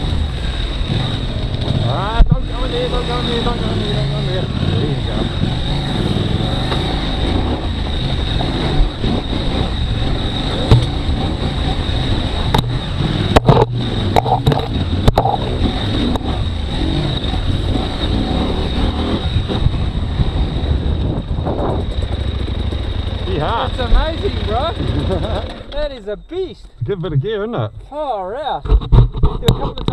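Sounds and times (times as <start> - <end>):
motorcycle engine under load: 0.0 - 26.0
sharp knocks and clatters: 10.6 - 11.2, 12.4 - 15.5, 28.6 - 29.9.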